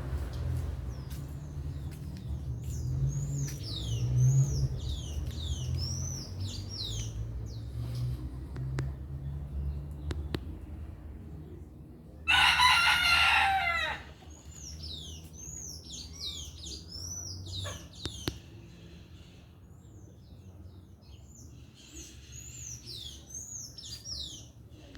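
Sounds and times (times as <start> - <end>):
small birds chirping: 0.3 - 12.0, 14.1 - 24.9
rooster crowing: 12.2 - 14.2.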